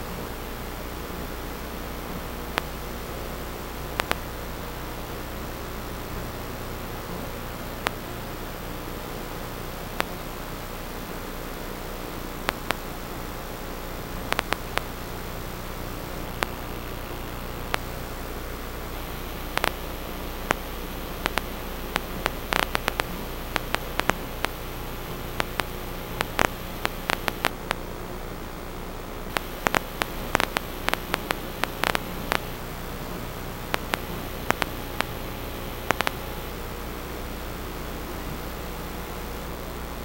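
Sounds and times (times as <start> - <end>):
static hiss: 0.0 - 40.0
sharp crackling clicks: 4.0 - 4.3, 10.0 - 10.2, 12.4 - 12.8, 14.3 - 15.0, 16.2 - 18.0, 19.0 - 27.8, 29.3 - 32.6, 33.6 - 36.4.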